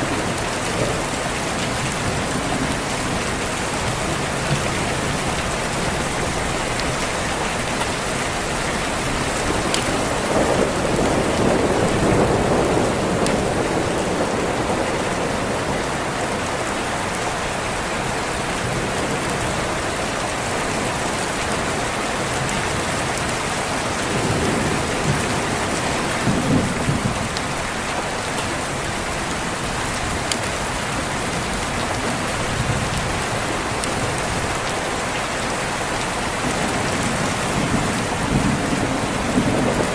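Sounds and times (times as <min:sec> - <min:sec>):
steady rain: 0:00.0 - 0:39.9
thunder rolling: 0:08.8 - 0:16.5, 0:24.0 - 0:27.4, 0:36.4 - 0:39.9.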